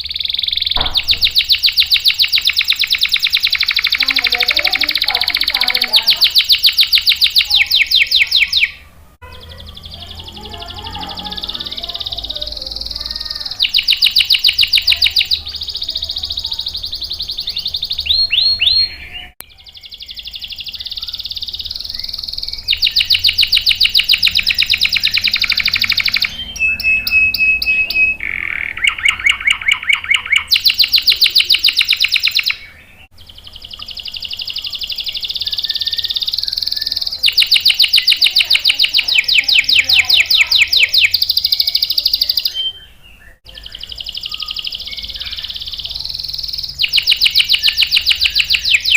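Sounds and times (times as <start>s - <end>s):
canary singing trills: 0.0s - 48.9s.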